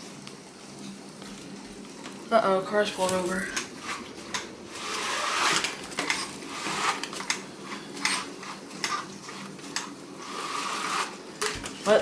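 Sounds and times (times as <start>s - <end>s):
steady rain hiss: 9.2s - 12.0s.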